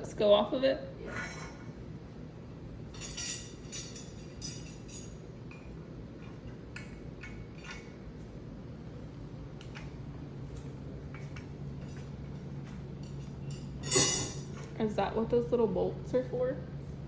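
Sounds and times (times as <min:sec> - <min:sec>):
low background hum: 0:00.0 - 0:17.0
metal hardware clinking: 0:13.0 - 0:14.6.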